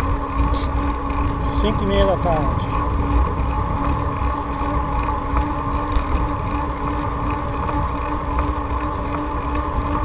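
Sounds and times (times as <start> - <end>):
constant steady hum: 0.0 - 10.0
wind rumble on microphone: 0.0 - 10.0.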